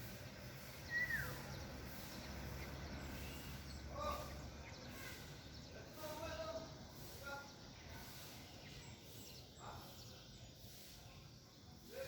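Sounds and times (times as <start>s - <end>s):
lower fuller bird call: 0.0s - 11.2s
bird whistling downward note: 0.8s - 1.4s.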